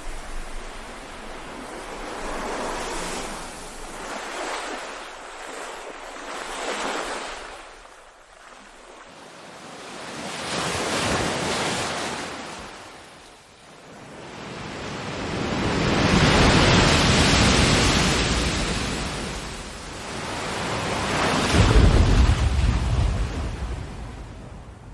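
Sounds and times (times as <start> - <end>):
ocean waves washing in: 0.0 - 8.9, 13.9 - 24.9.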